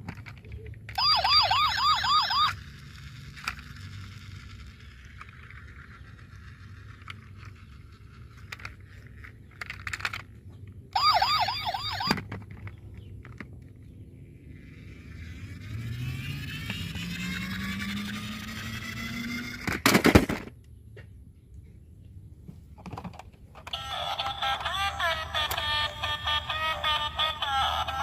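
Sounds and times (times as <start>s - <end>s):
toy siren yelping: 0.9s - 2.9s, 10.9s - 12.4s, 14.8s - 19.6s, 23.6s - 28.0s.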